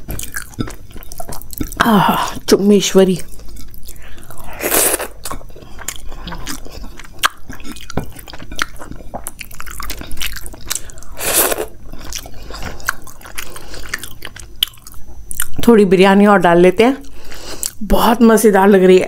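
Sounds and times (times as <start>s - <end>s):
wet chewing mouth sounds: 0.0s - 2.5s, 3.2s - 15.6s.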